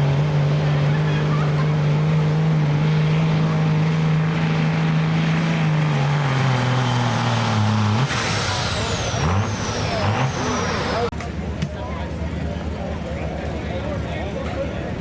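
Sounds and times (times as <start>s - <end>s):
pickup truck engine under load: 0.0s - 11.2s.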